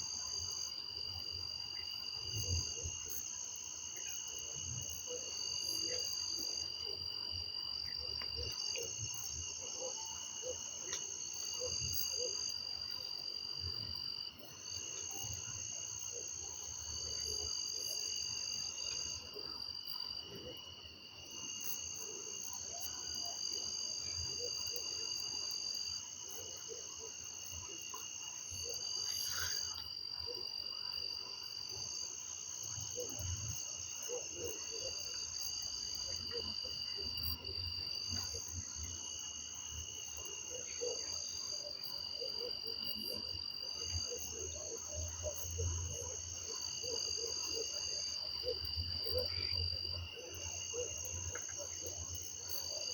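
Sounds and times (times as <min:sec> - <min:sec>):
insects trilling: 0:28.5 - 0:30.6.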